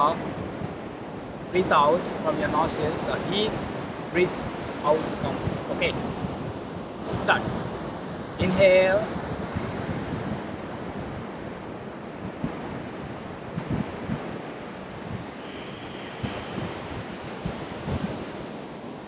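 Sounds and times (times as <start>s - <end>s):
surf washing: 0.0s - 19.0s
wind buffeting microphone: 0.0s - 19.0s
breath hissing through teeth: 9.4s - 11.8s.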